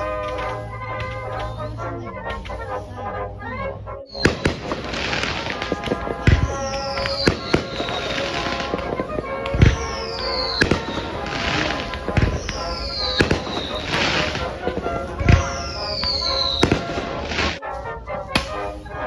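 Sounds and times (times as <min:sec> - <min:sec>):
firework pops and crackles: 0:00.0 - 0:02.8, 0:04.1 - 0:17.6, 0:18.4 - 0:19.0
deep firework booms: 0:04.1 - 0:17.6
falling whistle: 0:04.1 - 0:17.7.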